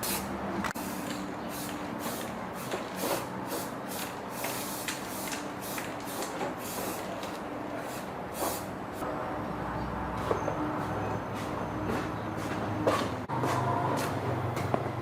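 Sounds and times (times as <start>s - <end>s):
compressed air gun hissing bursts: 0.0s - 7.2s, 7.8s - 8.8s.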